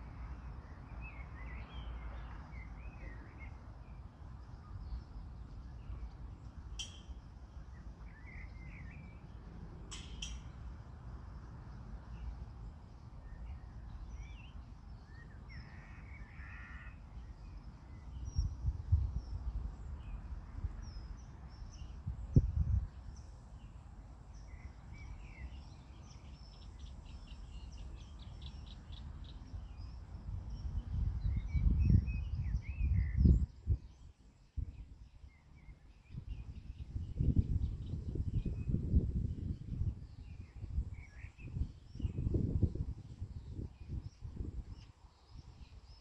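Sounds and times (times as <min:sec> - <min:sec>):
birds calling and chirping: 0:00.4 - 0:38.8.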